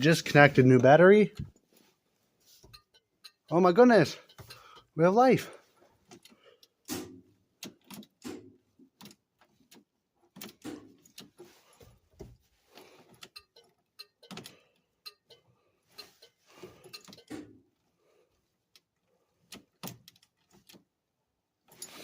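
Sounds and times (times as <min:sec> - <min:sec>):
metallic clicks and rattles: 0:02.6 - 0:05.0, 0:06.0 - 0:17.8.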